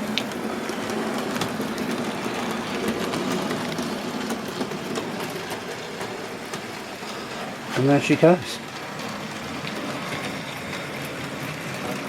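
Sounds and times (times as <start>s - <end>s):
wheels clicking over rail joints: 0.0s - 12.0s.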